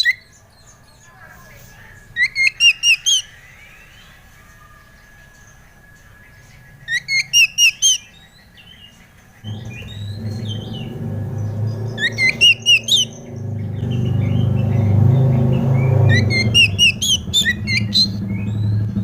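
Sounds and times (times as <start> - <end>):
bird song with sharp chirps: 0.0 - 19.0
low hum: 9.4 - 19.0.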